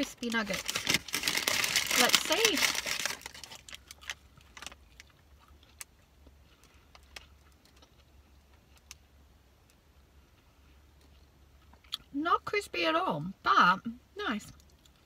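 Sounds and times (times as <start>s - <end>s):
low steady hum: 0.0s - 15.0s
chewing crispy food: 0.3s - 9.1s, 9.7s - 12.1s, 14.5s - 15.0s.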